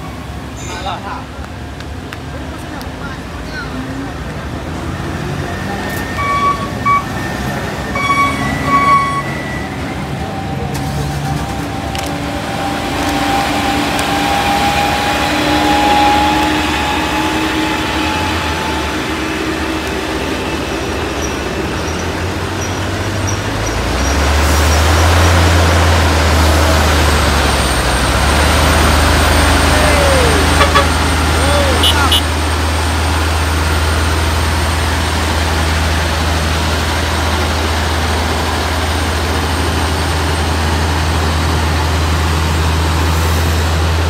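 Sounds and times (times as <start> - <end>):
heavy vehicle engines labouring: 0.0 - 44.0
rising whine: 4.8 - 21.8
short high tones: 5.9 - 10.7.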